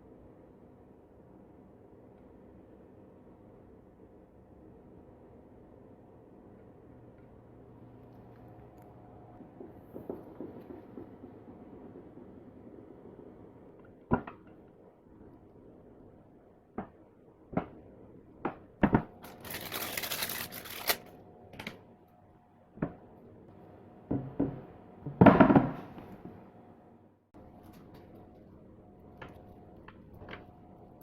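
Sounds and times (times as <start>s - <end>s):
packaging crinkling or tearing: 19.2s - 21.8s.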